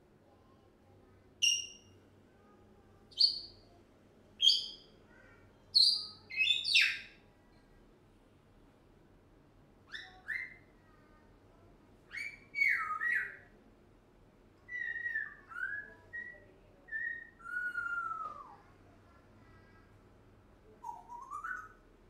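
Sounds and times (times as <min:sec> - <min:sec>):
parrot chirping: 0:01.4 - 0:02.0, 0:03.1 - 0:03.6, 0:04.4 - 0:04.9, 0:05.7 - 0:07.2, 0:09.9 - 0:10.6, 0:12.1 - 0:13.4, 0:14.7 - 0:18.2, 0:20.8 - 0:21.8.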